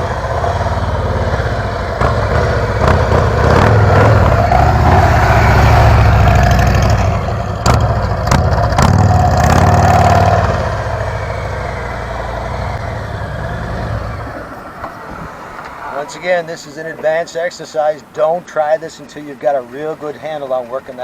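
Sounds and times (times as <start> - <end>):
motorcycle engine running: 0.0 - 15.1.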